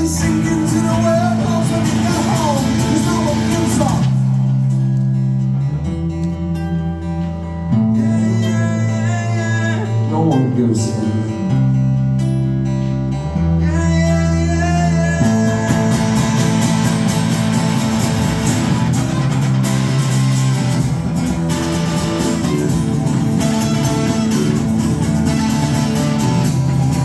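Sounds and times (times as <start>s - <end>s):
strummed guitars: 0.0s - 27.0s
sustained bass notes: 0.0s - 27.0s.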